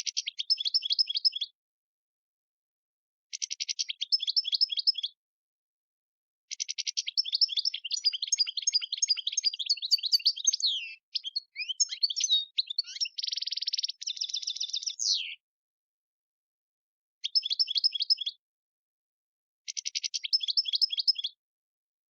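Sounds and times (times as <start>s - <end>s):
goldfinch singing: 0.1s - 1.5s, 3.4s - 5.2s, 6.5s - 15.4s, 17.2s - 18.4s, 19.7s - 21.4s.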